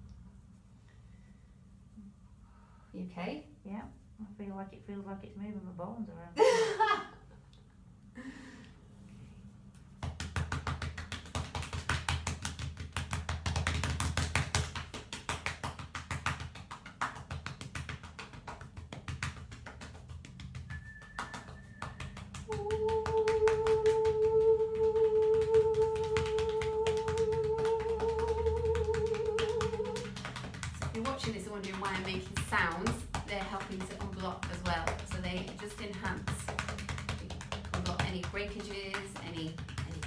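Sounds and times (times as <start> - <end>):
rapid tapping: 9.9 - 40.0.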